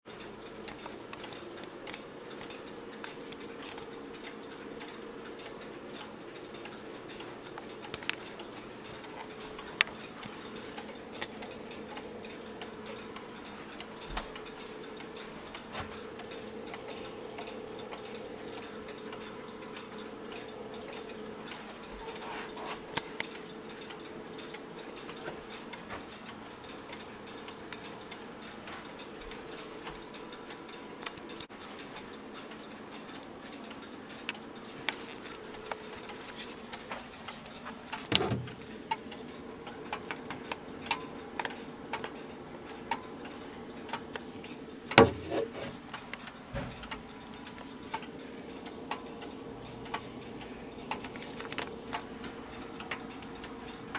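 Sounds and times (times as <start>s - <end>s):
faint steady hum: 0.1s - 53.9s
grandfather clock ticking: 0.1s - 53.9s
louder clock clicks: 37.9s - 41.1s, 44.9s - 46.0s.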